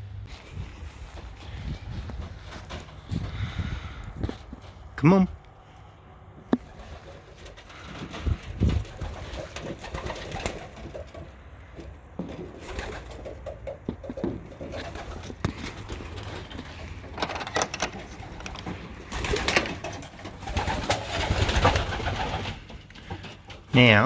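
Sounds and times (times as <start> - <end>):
rustling noise: 0.0 - 5.0
pigeons cooing: 6.6 - 17.2, 17.9 - 23.9.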